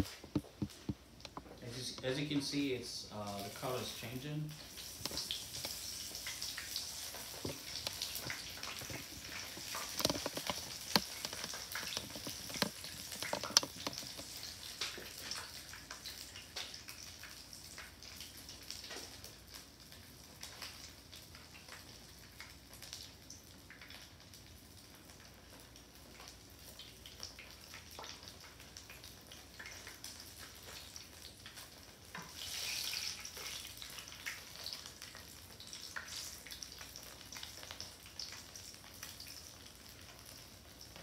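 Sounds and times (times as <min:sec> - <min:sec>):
food sizzling in hot oil: 0:01.4 - 0:41.0
oil popping: 0:04.8 - 0:16.9.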